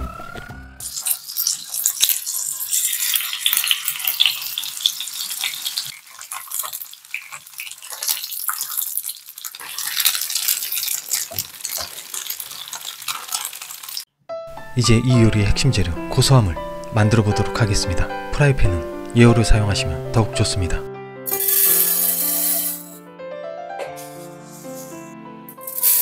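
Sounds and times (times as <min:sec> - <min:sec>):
tofu sizzling in oil: 0:00.8 - 0:14.1.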